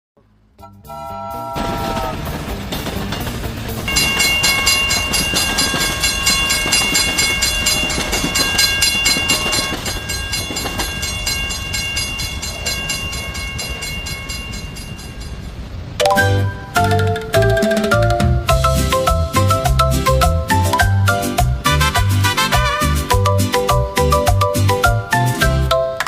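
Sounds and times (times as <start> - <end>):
train rumbling past: 0.2 - 25.8
high steady tones: 3.1 - 22.4.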